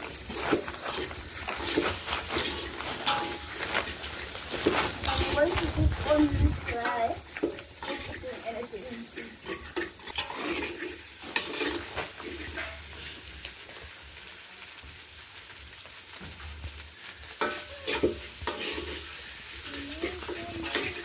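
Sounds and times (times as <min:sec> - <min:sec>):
utensil scraping and knocking pot: 0:00.0 - 0:08.5, 0:09.1 - 0:13.2, 0:17.4 - 0:19.1, 0:20.0 - 0:21.0
fish sizzling in oil: 0:00.0 - 0:21.0.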